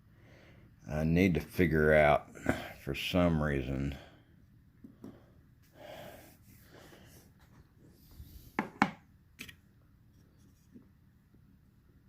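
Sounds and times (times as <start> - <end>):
soft rubbing: 10.0 - 11.0.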